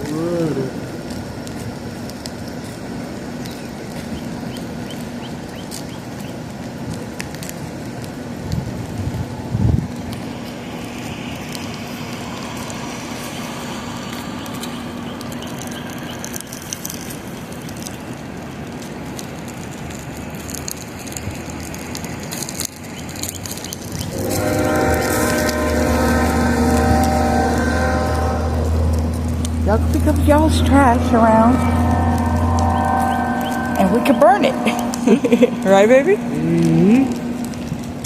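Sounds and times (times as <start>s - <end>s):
steady rumble: 8.3s - 17.1s, 23.8s - 38.0s
sustained horn blast: 8.9s - 16.6s, 23.9s - 38.0s
clicks and crackles: 13.8s - 30.1s.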